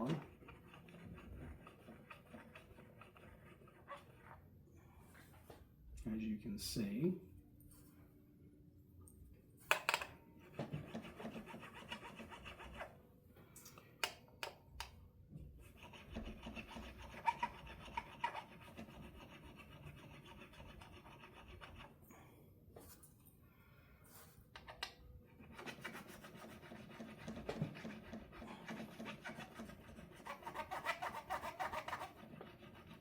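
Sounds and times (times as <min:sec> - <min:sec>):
file rasping on metal frets: 0:10.8 - 0:12.9, 0:15.7 - 0:22.0, 0:25.4 - 0:33.0.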